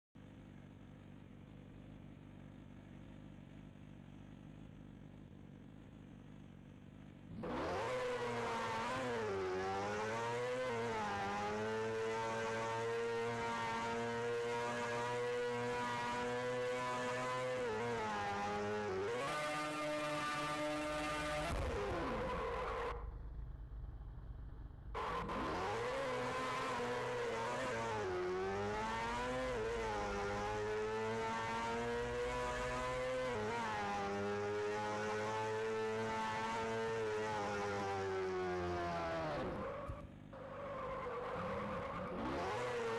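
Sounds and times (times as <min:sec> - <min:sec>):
motorcycle engine revving: 0:00.3 - 0:23.5, 0:24.9 - 0:40.4.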